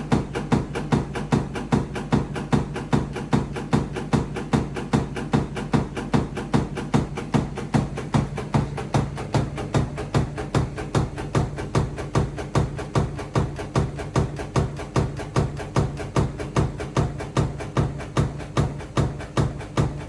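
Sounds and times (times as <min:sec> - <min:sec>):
washing machine knocking: 0:00.0 - 0:20.0
heavy thumps: 0:00.5 - 0:20.0
low motor hum: 0:04.7 - 0:20.0.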